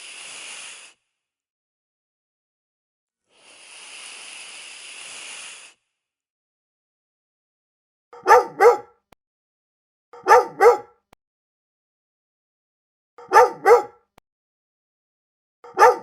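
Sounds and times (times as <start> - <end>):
dog double barks: 8.2 - 8.9, 10.2 - 10.9, 13.2 - 14.0, 15.6 - 16.0.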